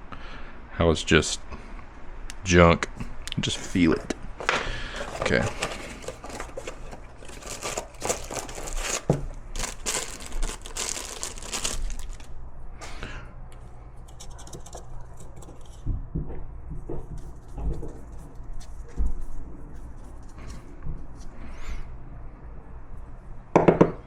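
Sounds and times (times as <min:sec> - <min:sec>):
tearing and crinkling: 0:03.6 - 0:12.3
parts clicking and knocking: 0:03.9 - 0:09.4, 0:13.5 - 0:18.2.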